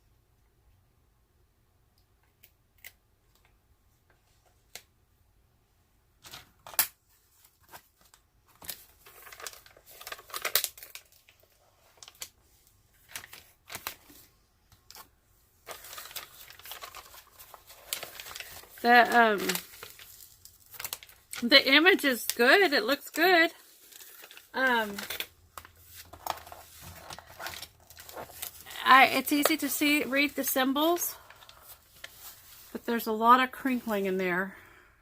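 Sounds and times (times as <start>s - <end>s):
plastic film crinkling: 6.2s - 34.1s.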